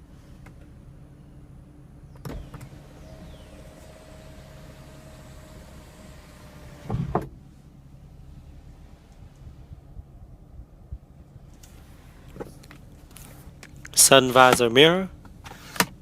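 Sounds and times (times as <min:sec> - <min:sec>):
moonroof motor running: 0:00.9 - 0:13.2.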